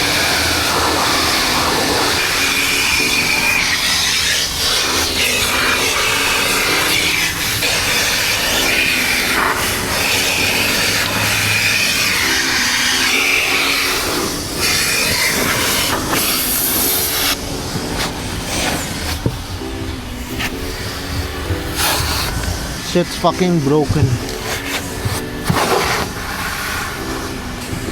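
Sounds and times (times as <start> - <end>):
vacuum hose suction rushing: 0.0 - 27.9.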